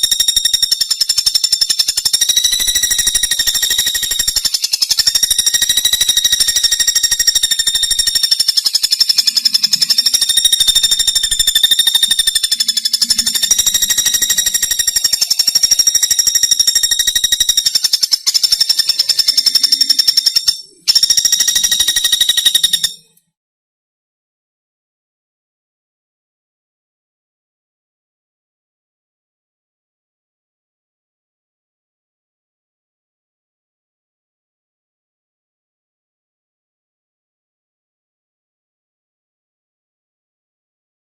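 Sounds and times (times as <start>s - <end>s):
bird buzzing trill: 0.0s - 23.2s.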